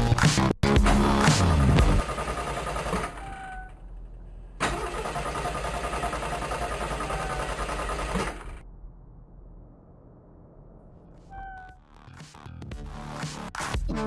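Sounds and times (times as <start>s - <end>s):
car engine starting: 0.4s - 2.4s, 4.6s - 8.6s.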